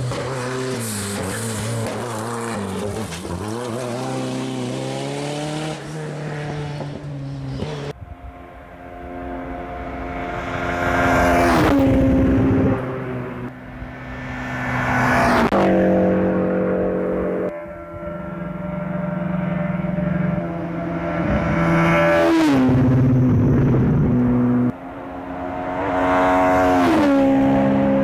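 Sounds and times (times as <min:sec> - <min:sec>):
rally car engines revving: 0:00.0 - 0:28.0
car passing close by: 0:09.2 - 0:17.5.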